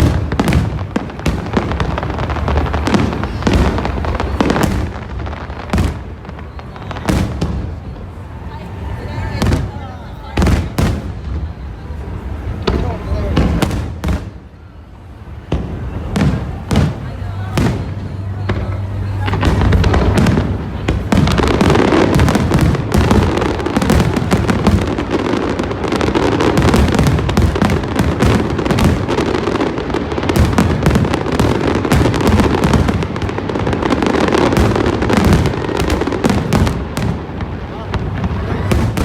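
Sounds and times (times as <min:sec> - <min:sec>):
fireworks bangs and crackling: 0:00.0 - 0:39.0
low rumble of booms: 0:15.3 - 0:39.0.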